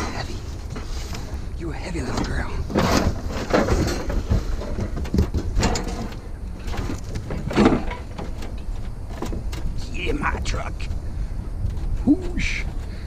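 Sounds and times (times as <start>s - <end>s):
metal grill clanking and scraping: 0.0s - 10.0s
steady low rumble: 0.0s - 13.0s.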